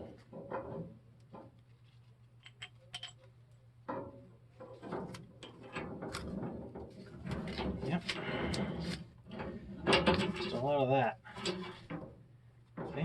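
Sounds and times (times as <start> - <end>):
metal pipe fittings clicking: 2.4 - 3.3
metal scraping: 4.8 - 12.2.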